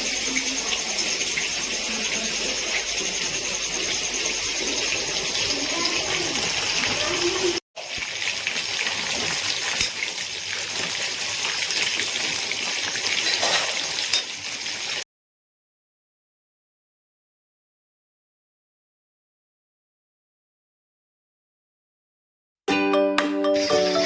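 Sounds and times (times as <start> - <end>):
chicken frying in hot oil: 0.0 - 15.1.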